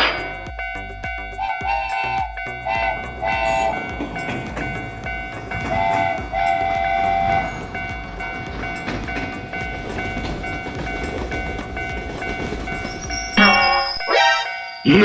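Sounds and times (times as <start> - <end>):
passing train rumble: 0.0 - 14.0
railroad crossing bell ringing: 0.0 - 15.0.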